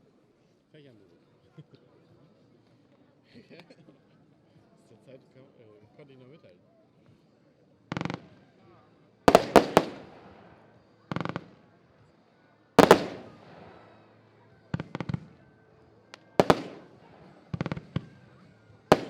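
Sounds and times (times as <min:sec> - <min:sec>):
firework shells banging: 0:09.3 - 0:10.3, 0:12.8 - 0:13.5, 0:16.4 - 0:17.0.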